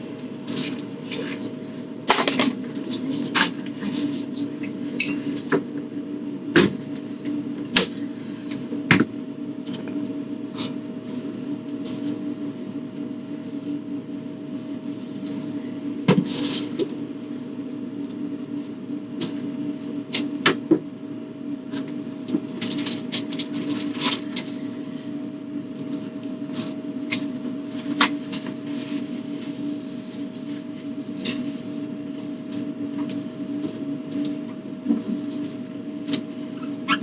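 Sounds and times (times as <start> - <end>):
steady low hum: 0.0 - 37.0
items being handled and moved: 0.3 - 5.7, 25.7 - 37.0.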